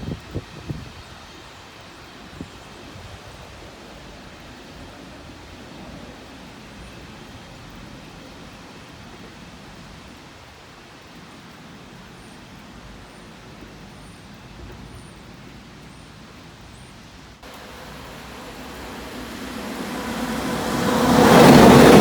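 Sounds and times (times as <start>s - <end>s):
steady background hiss: 0.0s - 22.0s
train approaching: 17.4s - 22.0s.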